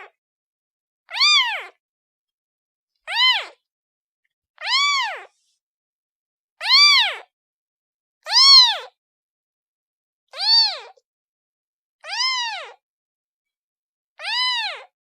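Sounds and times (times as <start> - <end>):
kitten meowing: 1.1 - 1.8, 3.1 - 3.6, 4.6 - 5.3, 6.6 - 7.3, 8.3 - 8.9, 10.4 - 11.0, 12.0 - 12.8, 14.2 - 14.9.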